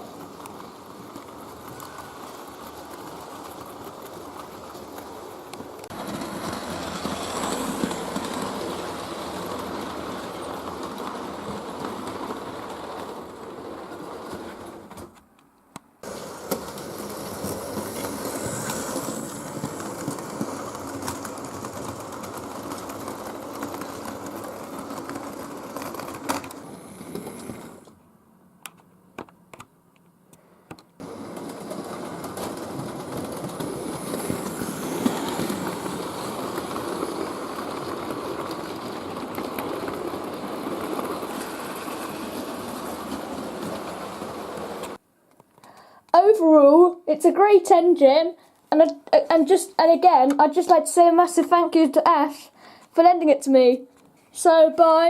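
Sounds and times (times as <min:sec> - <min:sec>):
model train wheels clicking on track: 0:00.0 - 0:15.1, 0:16.0 - 0:27.9, 0:30.7 - 0:45.0.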